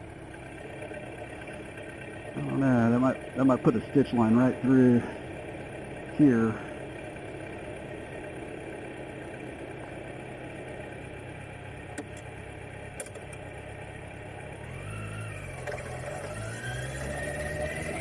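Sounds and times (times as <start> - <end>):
motorcycle engine revving: 14.6 - 18.0.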